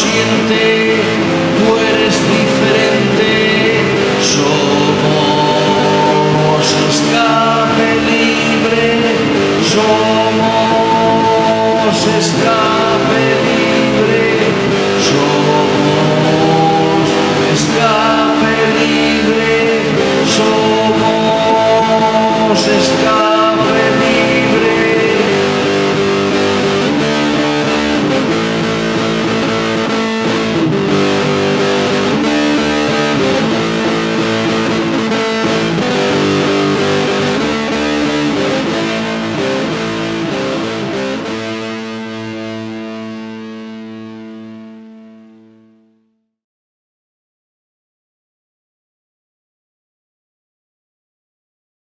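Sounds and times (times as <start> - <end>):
instrumental rock music with guitar: 0.0 - 45.8.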